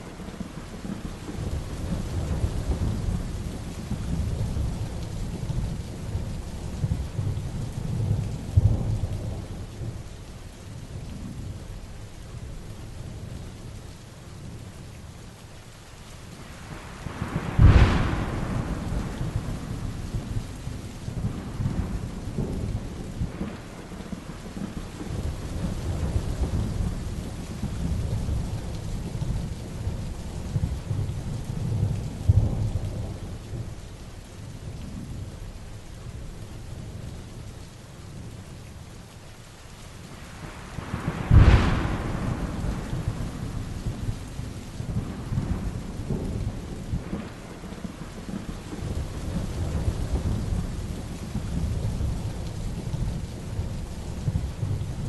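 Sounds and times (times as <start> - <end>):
heavy rain: 0.0 - 55.0
thunder rolling: 17.0 - 29.5, 40.3 - 55.0
loud close thunderclap: 17.0 - 33.8, 40.3 - 55.0.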